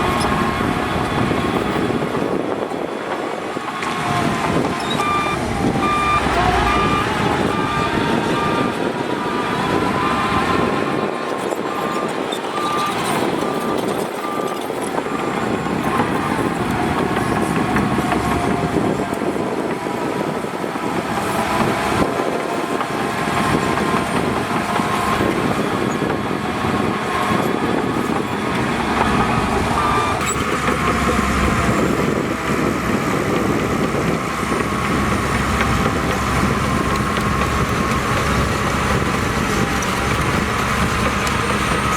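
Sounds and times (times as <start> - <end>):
diesel earthmoving machinery running: 0.0 - 41.9
reversing alarm beeping: 4.0 - 18.8, 25.0 - 32.6.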